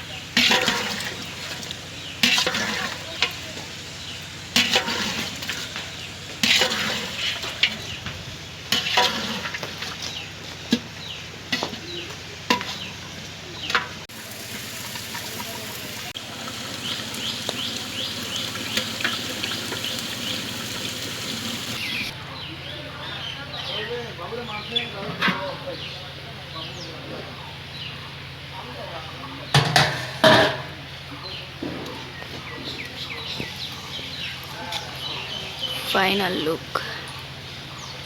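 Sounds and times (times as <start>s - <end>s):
meat sizzling: 0.2s - 10.6s, 14.1s - 22.1s
spatula scraping pan: 0.4s - 8.0s, 8.7s - 10.9s, 12.5s - 12.9s.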